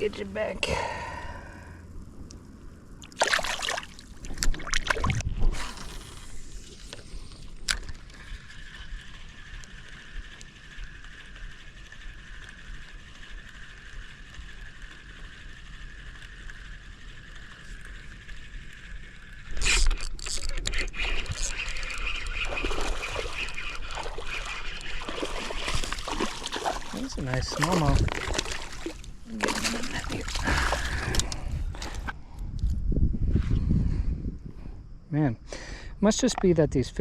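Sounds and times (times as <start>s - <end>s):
water splashing: 3.0s - 6.8s, 19.9s - 32.1s
fishing reel whine: 5.4s - 32.2s.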